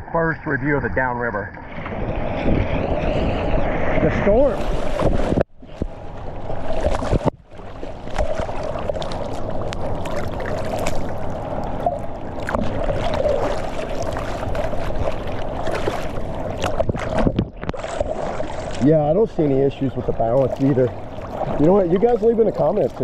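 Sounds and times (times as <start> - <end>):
paddle splashes: 4.0 - 23.0.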